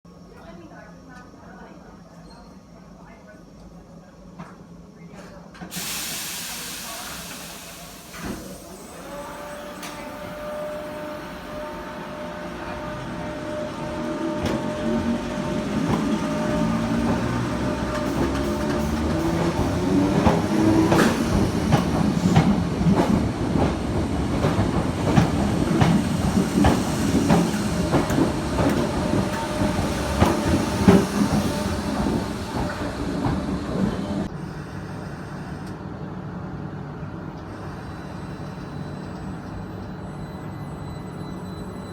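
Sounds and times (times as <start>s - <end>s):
passenger train passing: 5.7s - 41.9s
train wheels clicking over joints: 12.8s - 34.3s.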